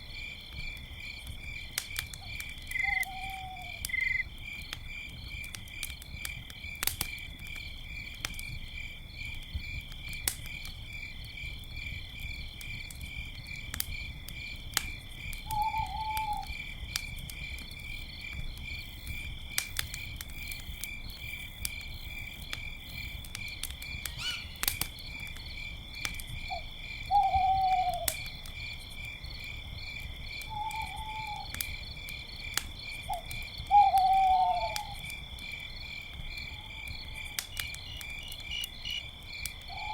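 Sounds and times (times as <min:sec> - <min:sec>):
campfire crackling: 0:00.0 - 0:39.9
crickets chirping: 0:00.0 - 0:39.9
owl calls: 0:02.7 - 0:04.2, 0:24.2 - 0:24.6, 0:26.5 - 0:28.1, 0:33.7 - 0:35.0.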